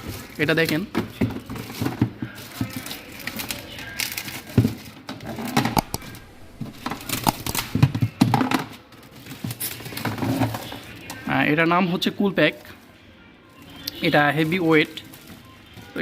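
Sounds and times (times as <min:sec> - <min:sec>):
cold pack taken out: 0:05.6 - 0:08.0.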